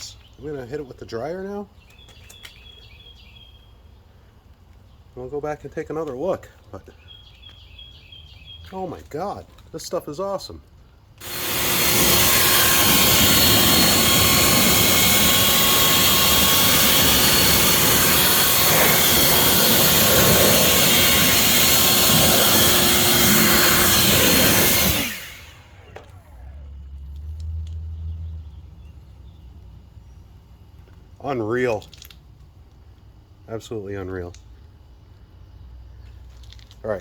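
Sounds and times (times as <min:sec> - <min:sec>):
electric air blower running: 0:11.2 - 0:26.9
blower spinning down: 0:11.2 - 0:27.8.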